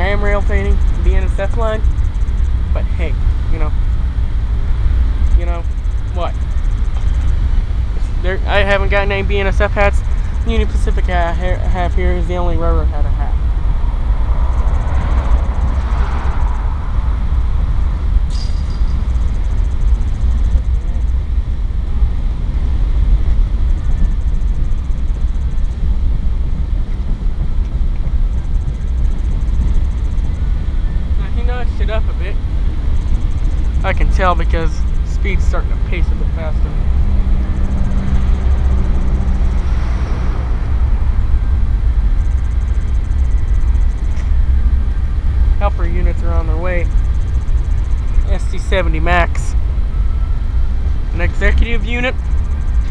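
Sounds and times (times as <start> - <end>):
diesel freight train rumbling: 0.0 - 52.9.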